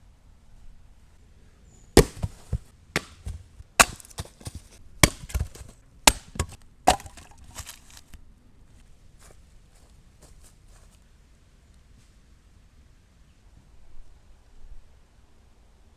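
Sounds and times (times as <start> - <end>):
chopping wood: 2.0 - 8.0.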